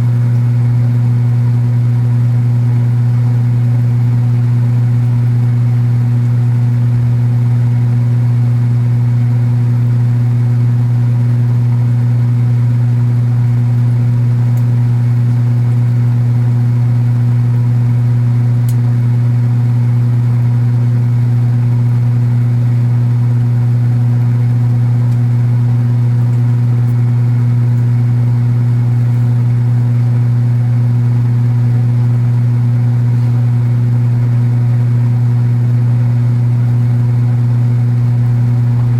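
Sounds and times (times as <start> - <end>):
washing machine motor humming: 0.0 - 38.9
cabinet buzzing: 36.5 - 38.9.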